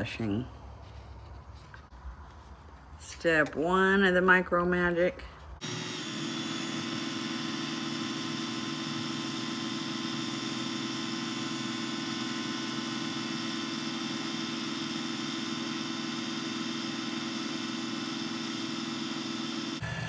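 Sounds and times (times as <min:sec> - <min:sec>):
lathe motor hum and hiss: 0:05.6 - 0:20.0.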